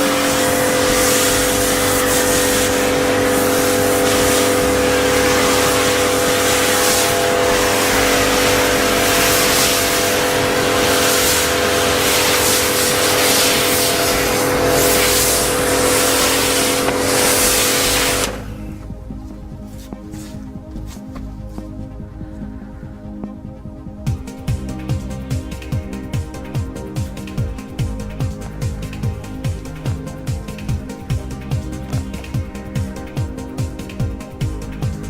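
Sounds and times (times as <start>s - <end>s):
high-pressure water spray hissing: 0.0s - 18.7s
pressure washer motor hum: 0.0s - 18.9s.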